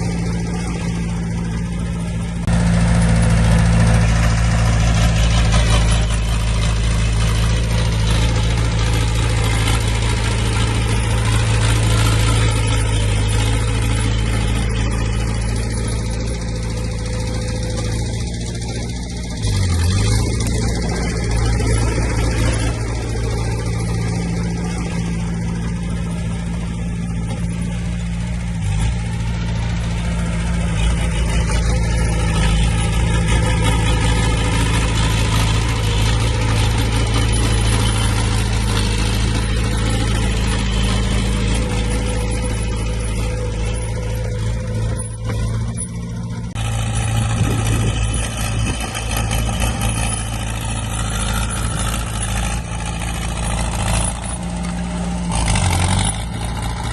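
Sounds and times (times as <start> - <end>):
heavy diesel engine droning: 0.0 - 56.9.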